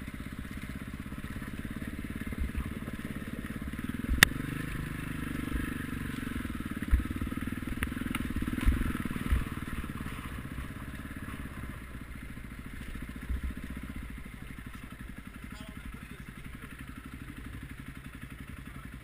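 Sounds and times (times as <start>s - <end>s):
motocross bike engine running: 0.0s - 19.0s
short low thumps: 3.8s - 9.9s.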